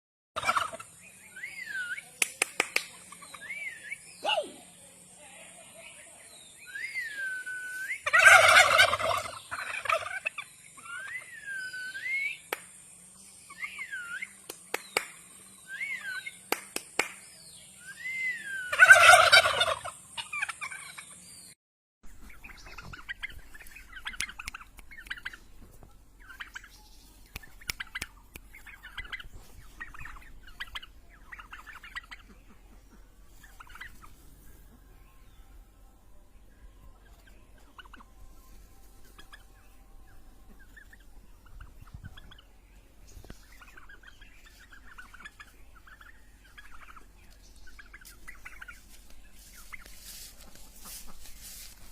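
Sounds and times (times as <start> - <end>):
turkeys gobbling: 0.4 - 2.0, 6.7 - 12.5, 18.5 - 21.2, 22.2 - 34.8, 36.9 - 51.9
short whistled calls: 6.7 - 8.0, 10.8 - 12.6, 17.8 - 18.8.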